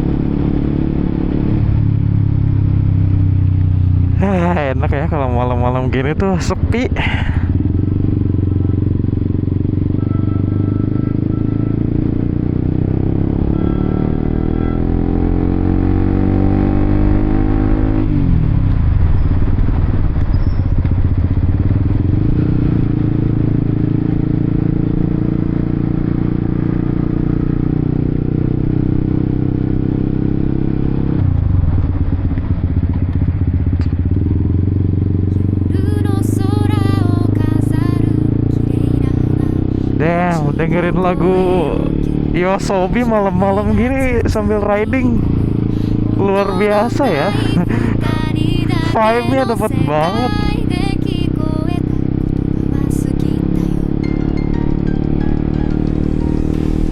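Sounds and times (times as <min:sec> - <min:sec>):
motorcycle engine revving: 0:00.0 - 0:56.9
gear change: 0:37.4 - 0:52.9.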